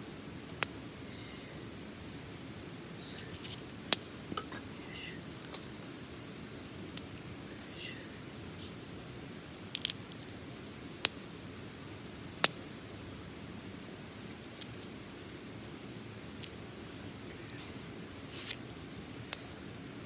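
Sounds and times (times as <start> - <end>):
wood fire hissing: 0.0 - 20.0
fire crackling pops: 0.4 - 0.8, 3.0 - 4.6, 5.2 - 7.8, 10.9 - 12.8, 18.0 - 19.6.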